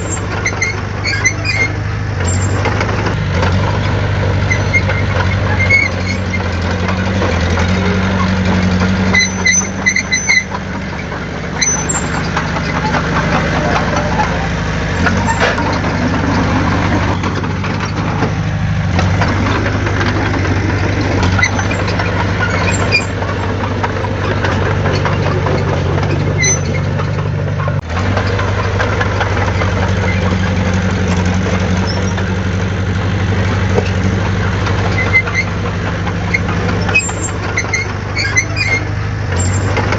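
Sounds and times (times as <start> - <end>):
high metallic squeaks: 0.0 - 2.7, 3.8 - 18.2, 18.9 - 27.8, 34.8 - 35.6, 36.2 - 39.9
diesel engine running: 0.0 - 39.9.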